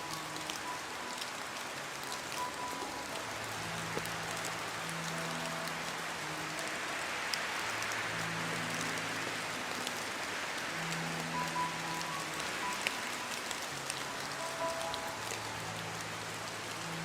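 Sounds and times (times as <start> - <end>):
rain hissing: 0.0 - 17.0
soft background music: 0.0 - 17.0.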